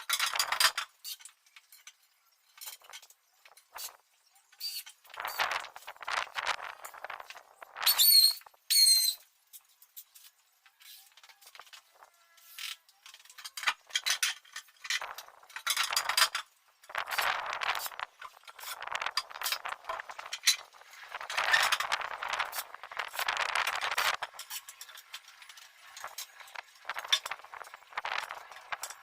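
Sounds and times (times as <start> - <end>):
rubbing and scraping: 2.6 - 9.2, 9.9 - 29.0
short high squeak: 7.8 - 9.2.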